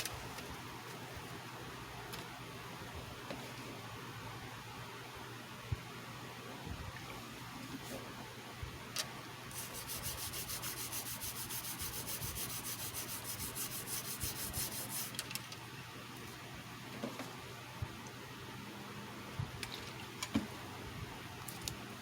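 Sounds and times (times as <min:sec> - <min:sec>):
rapid scrubbing on a surface: 0:09.5 - 0:15.2.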